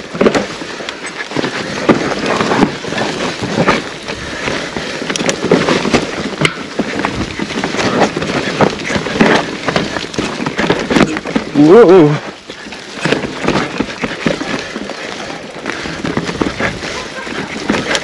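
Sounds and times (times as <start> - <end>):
bike knocks and rattles: 0.0 - 18.0
tyres rushing over dirt: 0.0 - 18.0
wind on microphone: 15.8 - 18.0.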